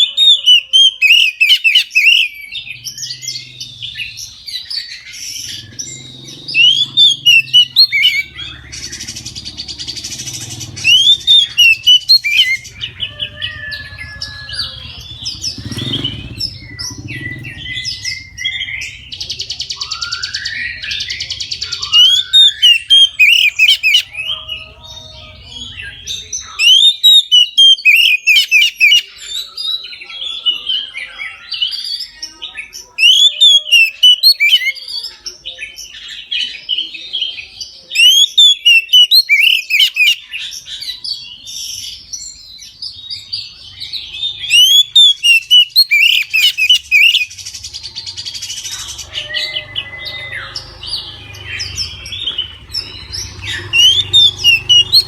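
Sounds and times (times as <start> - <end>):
bird song whistles and chirps: 0.0 - 55.0
buzzy rattling bird phrase: 0.2 - 29.3, 43.0 - 55.0.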